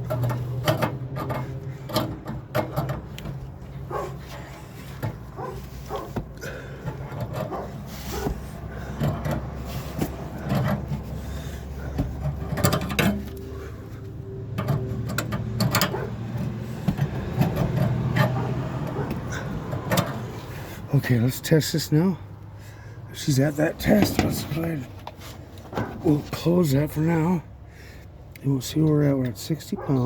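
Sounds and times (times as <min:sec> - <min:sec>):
clicks knocks and scraping: 0:00.0 - 0:20.9, 0:23.7 - 0:26.5.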